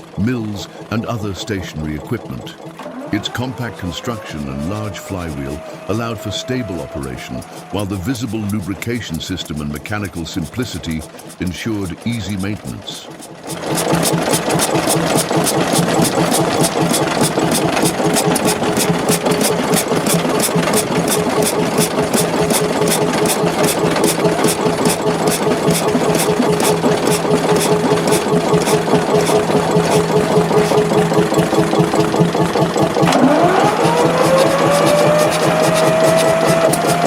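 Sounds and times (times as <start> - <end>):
stationary engine running: 0.0 - 37.0
whine rising in pitch: 3.0 - 8.1, 33.0 - 37.0.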